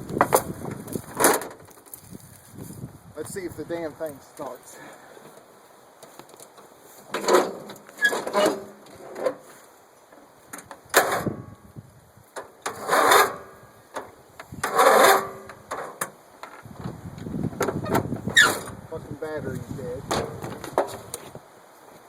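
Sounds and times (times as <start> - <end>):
mower starter cranking engine: 12.6 - 13.5, 14.6 - 16.1.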